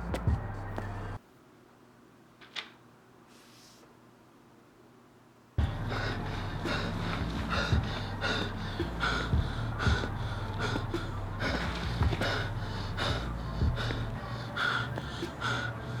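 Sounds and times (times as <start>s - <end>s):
low steady hum: 4.8s - 16.0s
person breathing hard: 5.6s - 16.0s.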